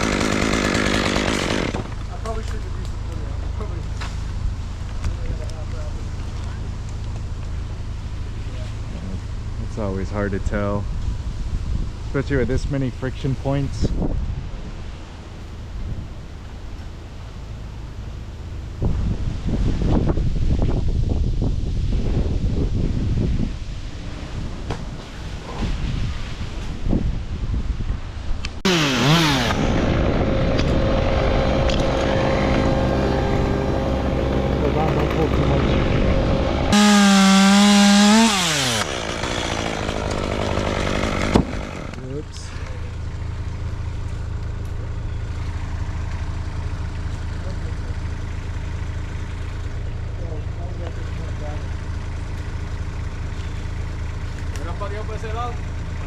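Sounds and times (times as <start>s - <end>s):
chainsaw engine: 0.0s - 3.7s, 28.6s - 44.1s
wind blowing over microphone: 10.8s - 12.6s, 13.6s - 14.9s, 18.8s - 28.4s.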